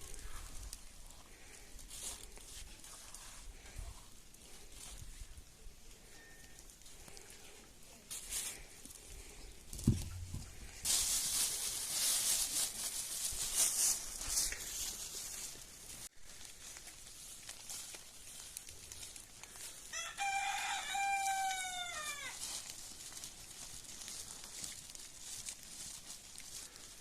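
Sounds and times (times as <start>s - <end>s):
rooster crowing: 19.9s - 22.4s.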